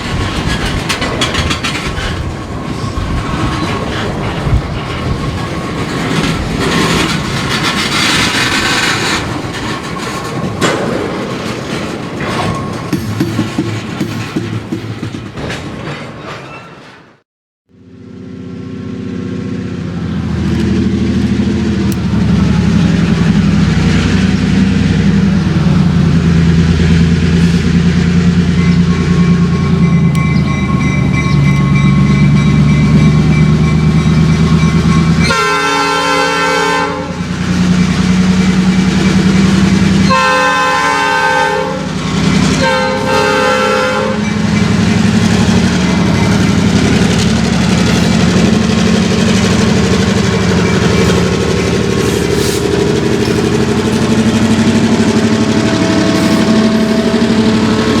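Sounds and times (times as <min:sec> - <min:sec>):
locomotive engine rumble: 0:00.0 - 0:16.9, 0:17.7 - 0:58.0
locomotive air horn blasts: 0:35.2 - 0:37.3, 0:40.0 - 0:44.4, 0:55.4 - 0:58.0.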